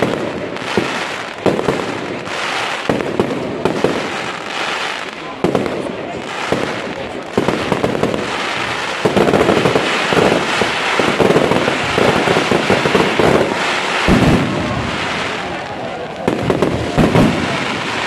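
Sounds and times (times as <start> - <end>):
fireworks crackling: 0.0 - 18.0
deep firework boom: 9.0 - 17.9.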